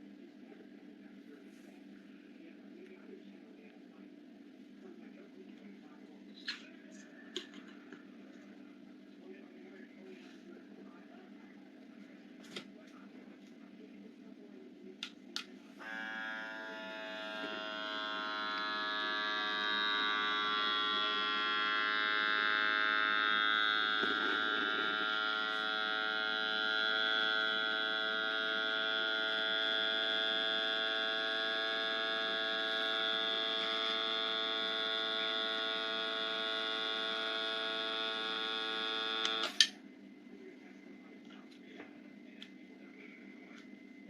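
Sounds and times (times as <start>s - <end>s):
electric vacuum sealer running: 15.8s - 39.7s.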